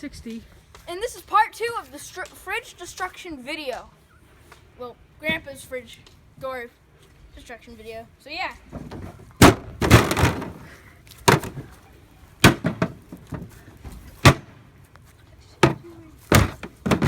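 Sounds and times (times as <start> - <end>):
refrigerator door being struck: 8.9 - 10.7, 12.4 - 13.4, 14.2 - 14.5, 15.6 - 17.0.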